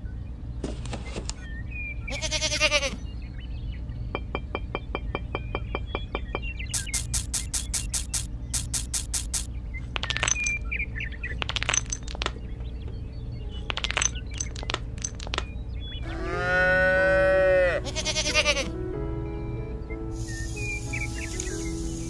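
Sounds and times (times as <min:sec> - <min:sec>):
pebbles clicking: 0:06.8 - 0:10.6, 0:11.4 - 0:12.4, 0:13.6 - 0:15.5
background music: 0:15.9 - 0:22.0
cow mooing: 0:16.0 - 0:18.7.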